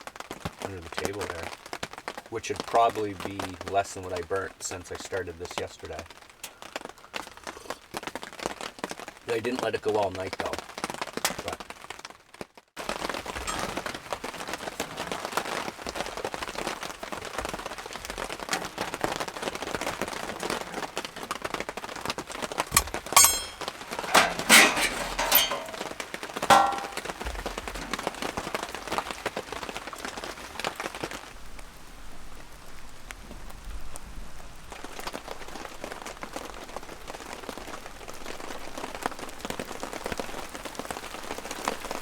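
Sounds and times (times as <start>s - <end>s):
rain pattering: 0.0s - 42.0s
knocks and clatter: 22.7s - 28.0s.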